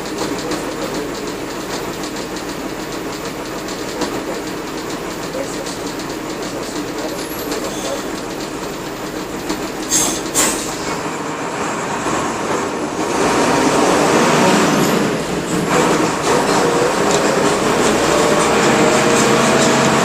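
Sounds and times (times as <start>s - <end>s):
bus diesel engine running: 0.0s - 20.0s.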